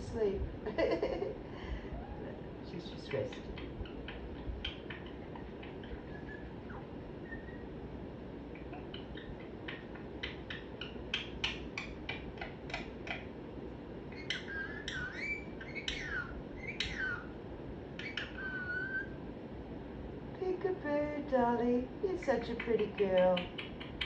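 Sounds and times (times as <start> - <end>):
parrot clicking: 3.2 - 6.3, 8.6 - 13.3, 22.4 - 24.0
parrot whistling: 3.6 - 7.7, 14.2 - 17.3, 18.0 - 19.2.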